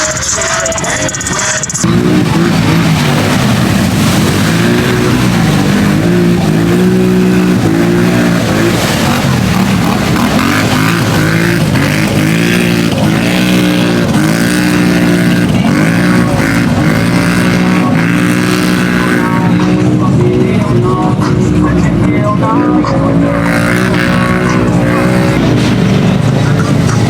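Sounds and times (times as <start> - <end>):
off-road vehicle engines revving: 1.2 - 27.0.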